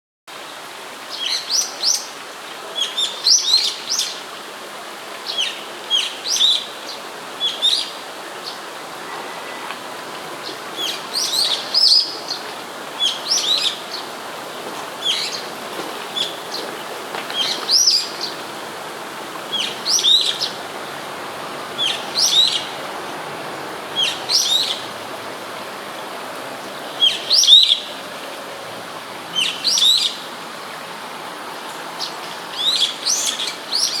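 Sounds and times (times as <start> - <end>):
steady background hiss: 0.3 - 34.0
bird calling high-pitched: 19.5 - 20.6, 21.8 - 22.7, 24.0 - 24.8, 27.0 - 27.9.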